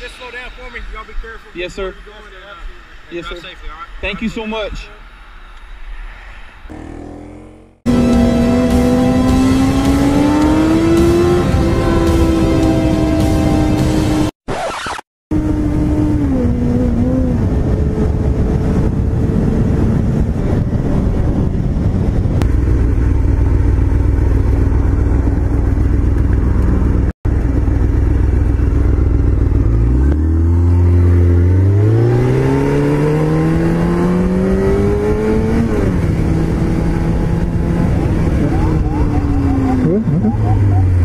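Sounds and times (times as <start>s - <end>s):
motorcycle engine accelerating: 6.7s - 14.3s, 15.3s - 41.0s
heavy wind rush: 15.3s - 27.8s, 30.9s - 41.0s.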